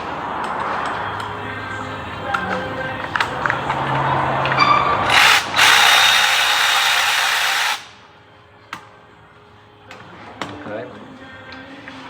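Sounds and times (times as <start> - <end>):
power tool spinning bolt: 4.4 - 8.0.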